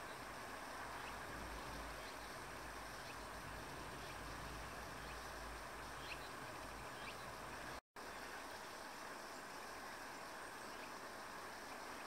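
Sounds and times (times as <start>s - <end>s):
small birds chirping: 0.0s - 7.8s
outdoor background hiss: 0.0s - 12.0s.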